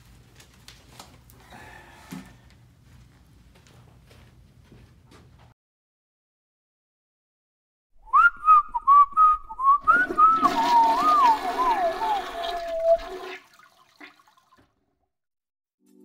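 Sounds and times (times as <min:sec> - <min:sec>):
person whistling a tune: 0:08.0 - 0:13.2
rushing water: 0:09.8 - 0:14.4.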